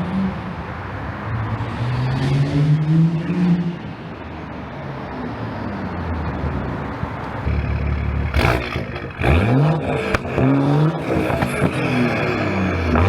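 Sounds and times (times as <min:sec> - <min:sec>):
car engine accelerating: 0:06.9 - 0:13.0
sharp exhaust pop: 0:08.3 - 0:11.8.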